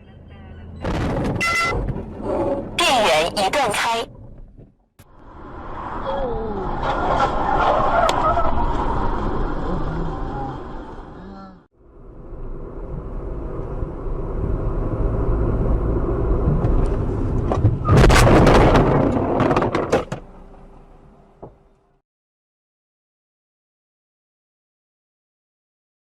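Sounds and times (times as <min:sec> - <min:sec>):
vehicle running: 0:00.0 - 0:03.8, 0:04.4 - 0:22.0
car crash impact: 0:00.8 - 0:02.1, 0:17.6 - 0:20.3
crunching and clattering hits: 0:00.8 - 0:02.1, 0:17.5 - 0:20.3.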